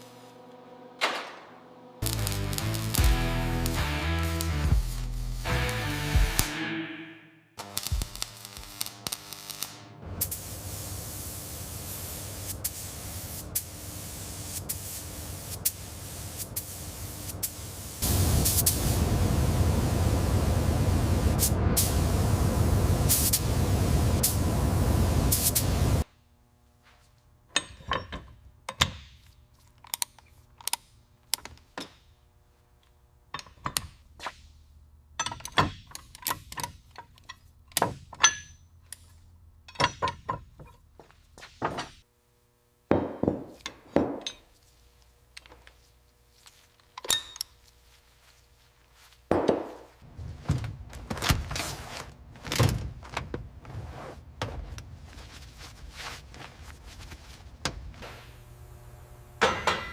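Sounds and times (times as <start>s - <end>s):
tools and parts knocking and clinking: 27.5s - 32.2s, 33.3s - 34.1s, 35.1s - 42.0s, 42.9s - 44.6s, 46.8s - 47.6s, 59.4s - 59.9s.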